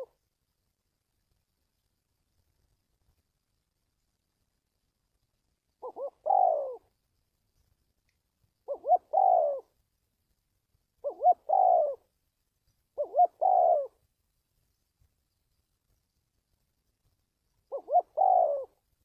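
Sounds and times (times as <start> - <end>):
dove cooing: 5.8 - 6.9, 8.6 - 9.8, 11.0 - 12.1, 13.0 - 14.0, 17.7 - 18.8.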